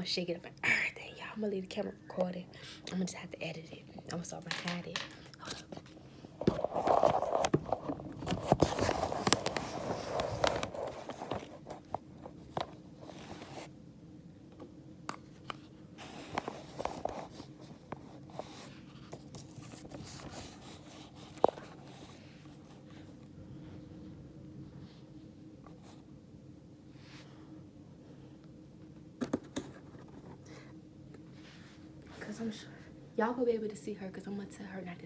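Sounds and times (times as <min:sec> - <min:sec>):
phone handling rustling: 0:04.6 - 0:13.6, 0:15.1 - 0:22.2.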